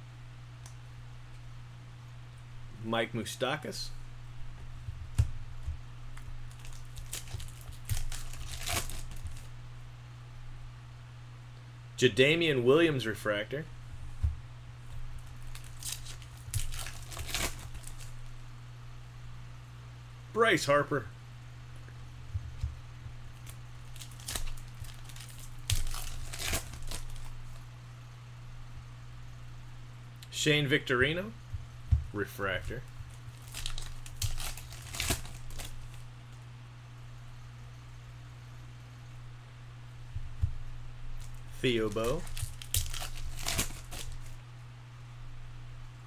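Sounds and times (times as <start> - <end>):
steady low hum: 0.0 - 46.0
trading cards rustling: 6.2 - 9.5, 14.9 - 18.3, 22.4 - 27.6, 32.1 - 36.0, 41.2 - 44.4.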